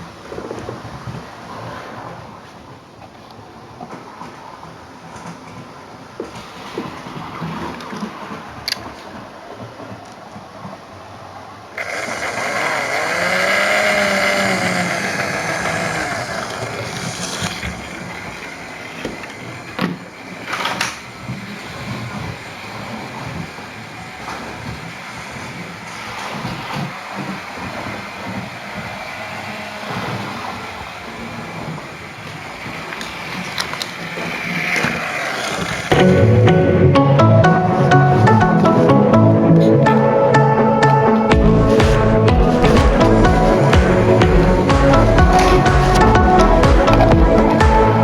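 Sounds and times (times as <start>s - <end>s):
model train motor whirring: 11.8s - 19.4s, 25.0s - 35.9s.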